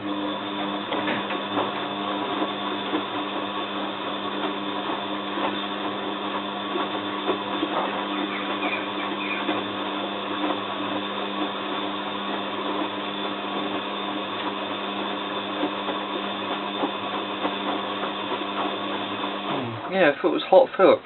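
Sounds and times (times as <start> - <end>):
washing machine humming: 0.0 - 21.0.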